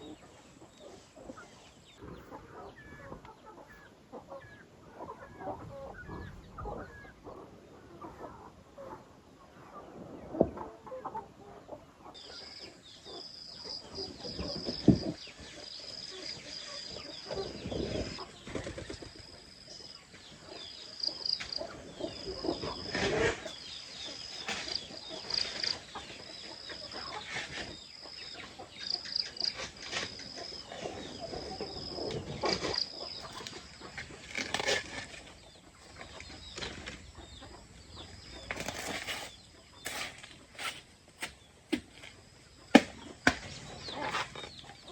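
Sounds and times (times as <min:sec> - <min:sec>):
chickens clucking: 0:00.0 - 0:44.9.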